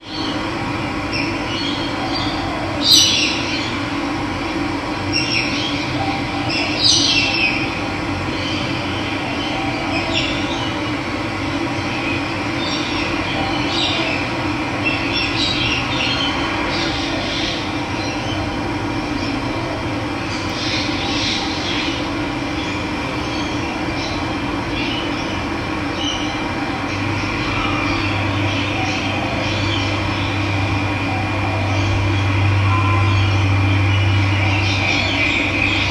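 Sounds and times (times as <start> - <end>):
birds chirping: 20.2 - 35.9.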